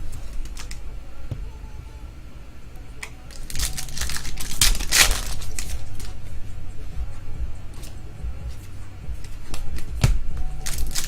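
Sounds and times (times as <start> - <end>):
foil wrapper crinkling and tearing: 3.3 - 6.2, 10.6 - 11.0.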